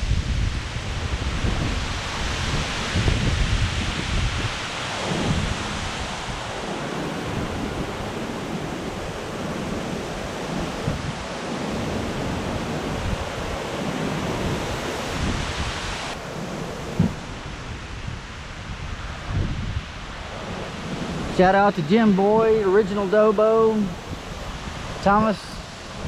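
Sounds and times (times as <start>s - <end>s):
rain: 0.0s - 26.0s
strong wind blowing: 0.0s - 26.0s
wind buffeting microphone: 0.0s - 26.0s
low thump: 17.0s - 17.2s.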